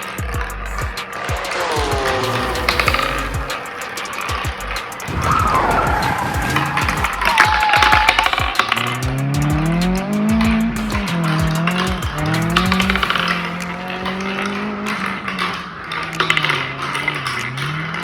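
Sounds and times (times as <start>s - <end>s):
wavering rolling hum: 0.0s - 18.0s
marbles clicking and clacking: 6.6s - 18.0s.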